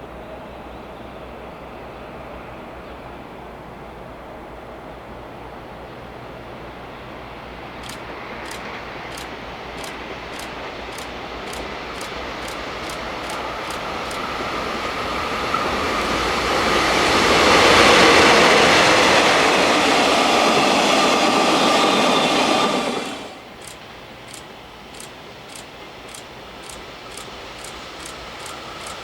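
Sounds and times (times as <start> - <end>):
freight train passing: 0.0 - 29.0
steady high whine: 7.8 - 29.0.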